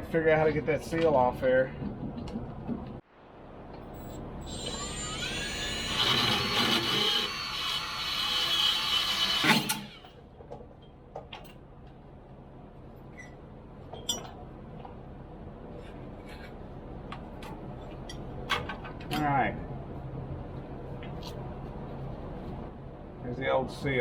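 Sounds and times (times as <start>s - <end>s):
power tool whining: 4.0s - 10.2s.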